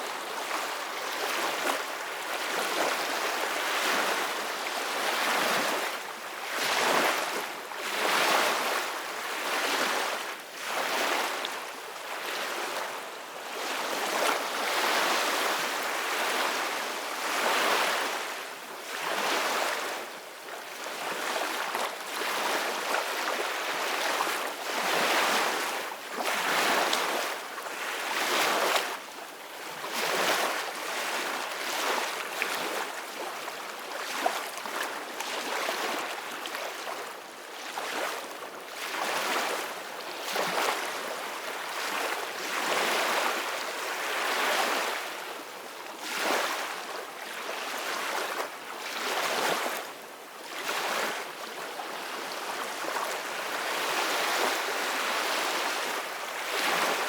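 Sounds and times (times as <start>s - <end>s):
ocean waves breaking on beach: 12.1s - 49.8s, 50.5s - 57.0s.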